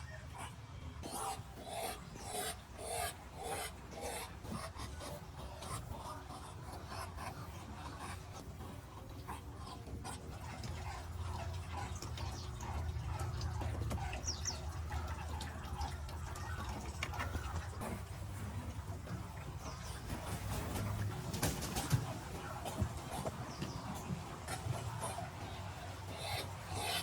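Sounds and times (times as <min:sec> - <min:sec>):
duck calls and clicks: 0:19.6 - 0:27.0.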